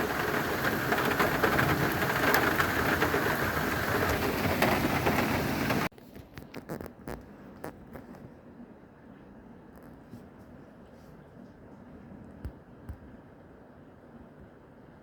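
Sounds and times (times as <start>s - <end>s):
heavy rain pouring: 0.0s - 5.9s.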